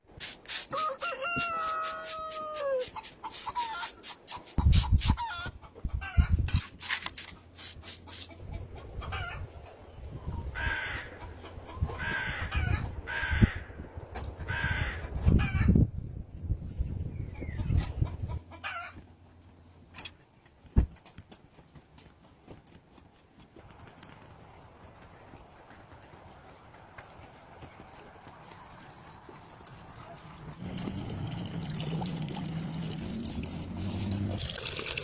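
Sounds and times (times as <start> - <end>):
rooster crowing: 0.7 - 2.9
chickens clucking: 0.7 - 21.8.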